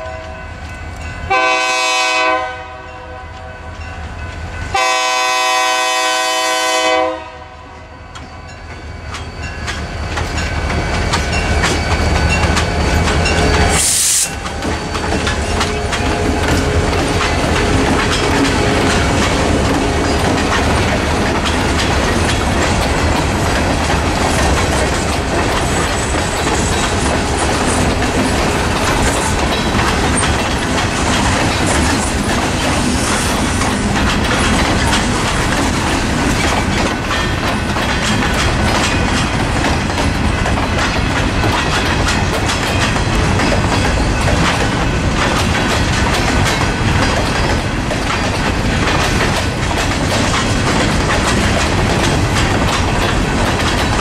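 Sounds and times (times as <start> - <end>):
freight train cars rumbling past: 0.0 - 54.0
wheel clicks on rails: 33.6 - 54.0.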